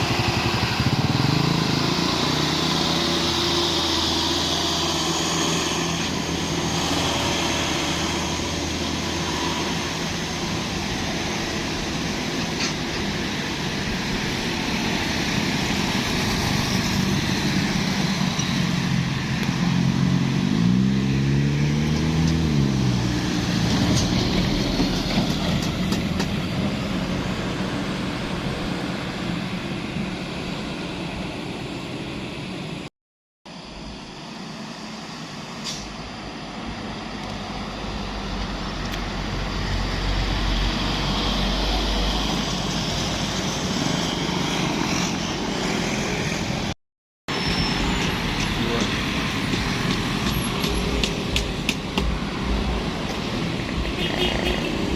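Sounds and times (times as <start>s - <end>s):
vehicle engines passing: 0.0s - 32.8s, 34.6s - 54.9s.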